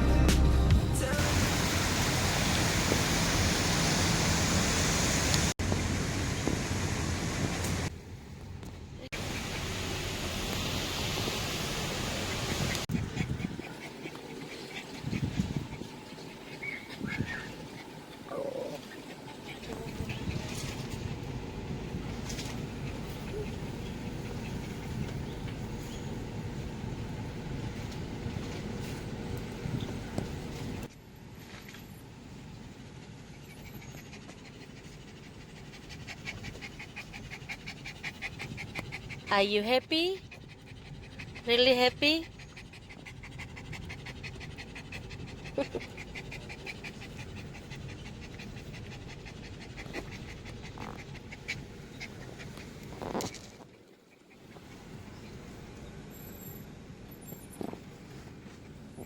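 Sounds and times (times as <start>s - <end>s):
low steady rumble: 0.0s - 59.0s
puppy panting: 12.0s - 28.8s, 33.3s - 55.6s.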